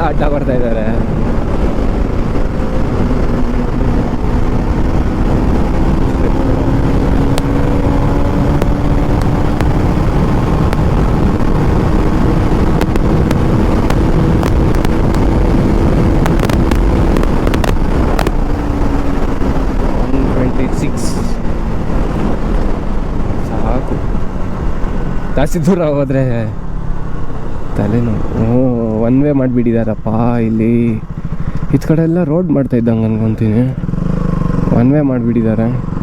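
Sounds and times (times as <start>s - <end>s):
wind rush: 0.0s - 29.0s
motorcycle engine accelerating: 0.0s - 36.0s
sharp clicks: 4.7s - 20.1s.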